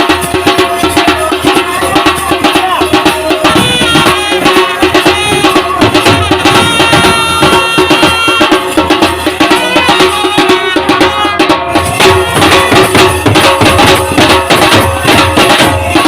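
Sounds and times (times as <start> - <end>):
steady drumming: 0.0 - 16.0
wind instrument wavering melody: 3.4 - 14.6.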